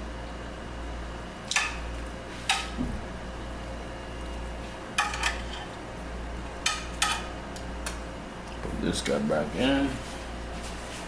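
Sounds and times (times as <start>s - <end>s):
steady low hum: 0.0s - 11.0s
utensils and baking dish clinking: 5.0s - 5.7s, 6.6s - 7.3s.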